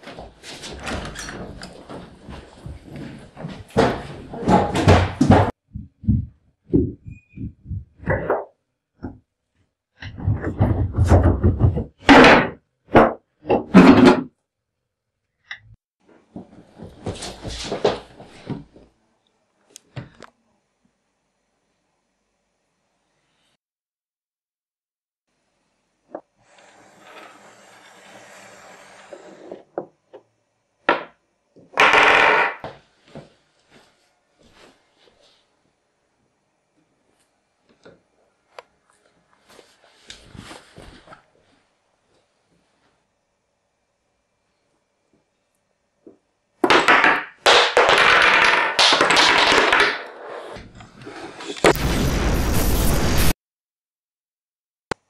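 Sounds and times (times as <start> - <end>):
loud blast: 51.7 - 53.4
loud crashing bursts: 51.7 - 53.4.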